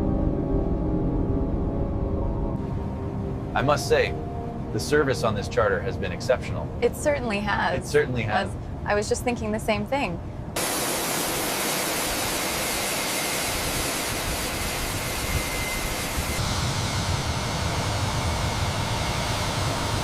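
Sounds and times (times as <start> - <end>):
jet engine low rumble: 0.0 - 20.0.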